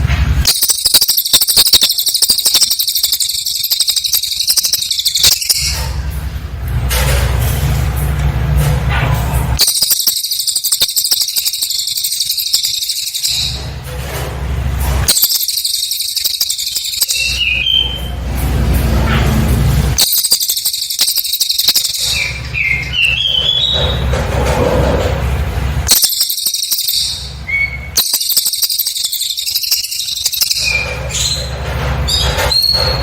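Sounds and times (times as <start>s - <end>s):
bird whistled notes: 0.5s - 5.9s, 9.6s - 13.7s, 15.0s - 18.2s, 20.0s - 24.1s, 25.9s - 31.5s
bird trilling: 0.5s - 6.0s, 9.6s - 13.8s, 15.0s - 18.2s, 20.0s - 24.1s, 25.9s - 31.6s.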